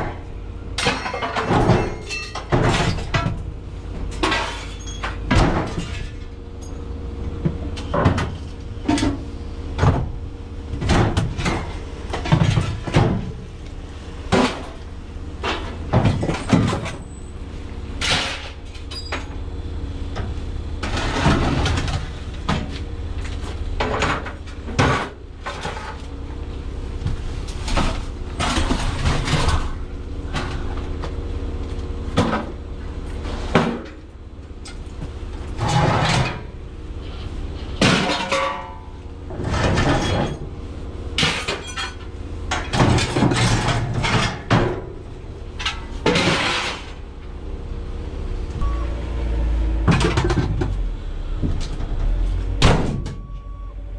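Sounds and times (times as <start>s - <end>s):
vehicle engine rumble: 0.0s - 53.9s
scrap metal clanking: 4.1s - 6.8s, 18.0s - 19.3s, 20.8s - 26.1s, 27.5s - 30.8s, 35.5s - 40.5s, 41.2s - 47.1s.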